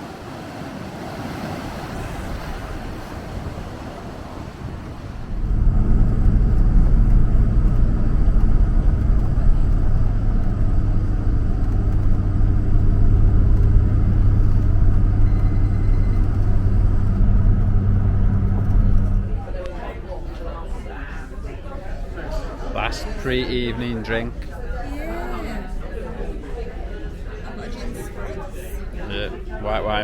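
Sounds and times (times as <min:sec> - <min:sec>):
vehicle engine rumbling: 0:05.0 - 0:20.0
low hum: 0:05.1 - 0:20.1.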